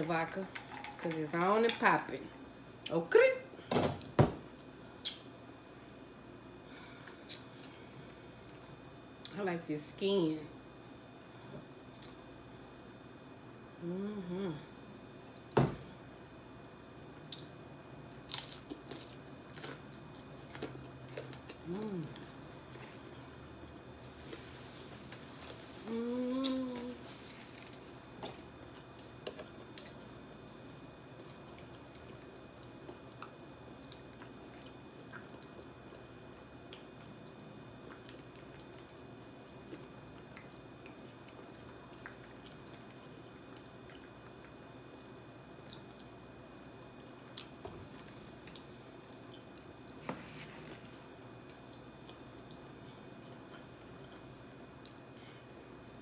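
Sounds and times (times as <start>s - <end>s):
low room hum: 0.0s - 56.0s
chewing food: 31.2s - 55.1s.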